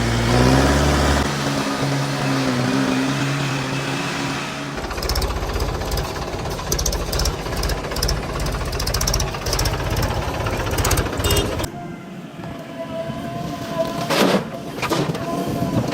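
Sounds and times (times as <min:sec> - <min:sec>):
diesel engine clattering: 0:00.0 - 0:11.7.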